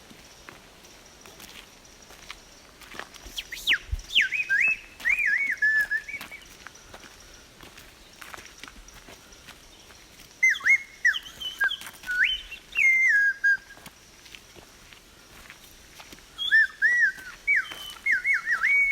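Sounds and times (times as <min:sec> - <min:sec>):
person whistling: 0:03.3 - 0:06.5, 0:10.4 - 0:13.8, 0:16.4 - 0:18.9.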